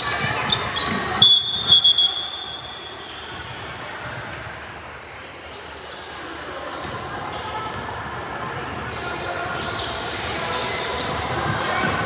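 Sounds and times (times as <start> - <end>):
basketball bouncing on court: 0.2 - 1.3
referee's whistle: 0.5 - 3.3.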